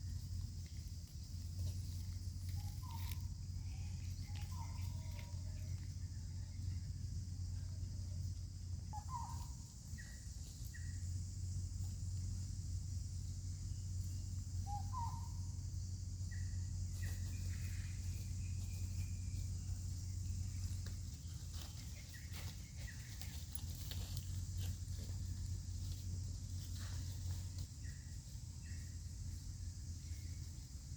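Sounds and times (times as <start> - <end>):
low hum: 0.0 - 30.9
short chirping calls: 8.8 - 11.0, 13.7 - 15.6.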